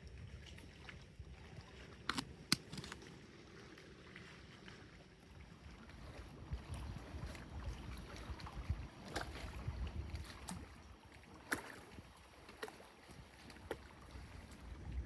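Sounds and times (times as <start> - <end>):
paddle strokes in water: 0.0 - 15.0
sharp knocks and splashes: 2.0 - 3.2.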